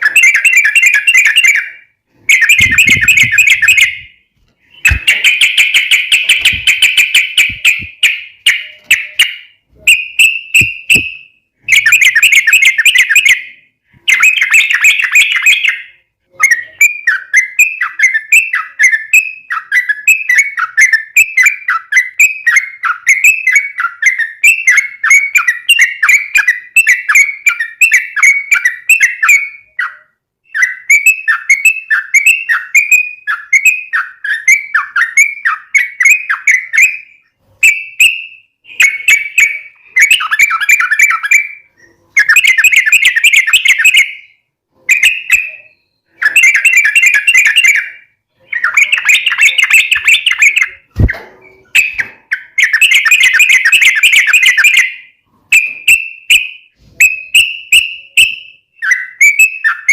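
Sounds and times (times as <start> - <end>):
bulbul warbling song: 0.0 - 19.0, 33.3 - 56.4.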